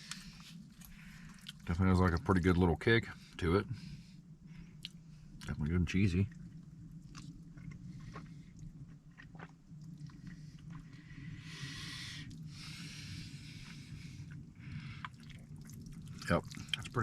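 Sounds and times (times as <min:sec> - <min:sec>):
person chewing soup: 0:00.0 - 0:01.6, 0:04.7 - 0:05.5, 0:06.3 - 0:12.6, 0:13.6 - 0:17.0
steady low hum: 0:00.0 - 0:17.0
breathy hiss: 0:10.3 - 0:15.2.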